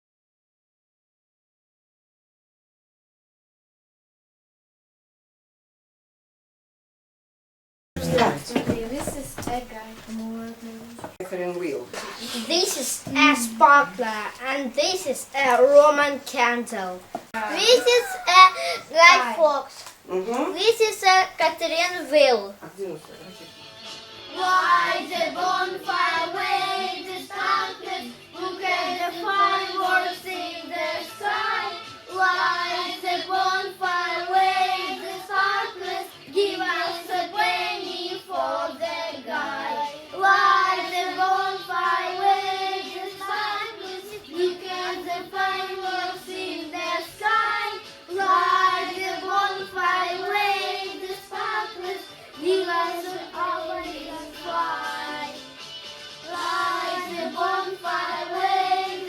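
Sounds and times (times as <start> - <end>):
children singing: 12.0 - 16.8, 17.5 - 22.4, 24.3 - 55.6, 56.2 - 59.0.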